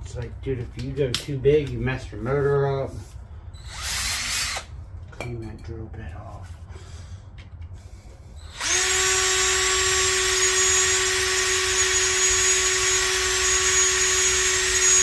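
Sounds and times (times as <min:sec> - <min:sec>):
electric drill drilling metal: 0:03.6 - 0:04.7, 0:08.5 - 0:15.0.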